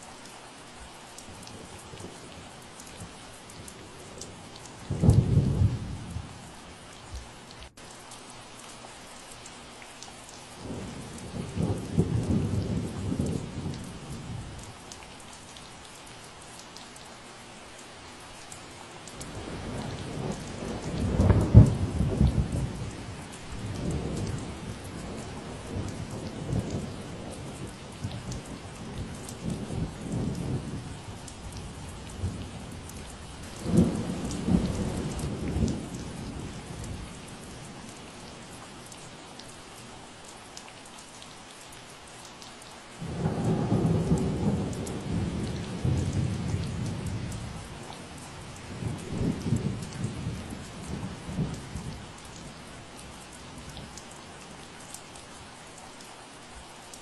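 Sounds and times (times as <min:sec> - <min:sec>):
steady rain falling: 0:00.0 - 0:57.0
low rolls of thunder: 0:04.2 - 0:06.4, 0:10.6 - 0:14.4, 0:19.2 - 0:38.2, 0:43.0 - 0:52.6.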